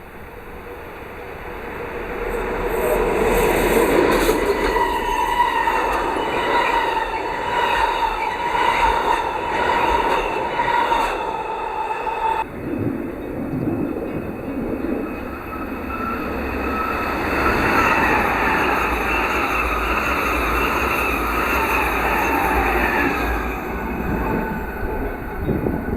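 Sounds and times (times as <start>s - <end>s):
train wheels rumbling on rail: 0.0s - 25.9s.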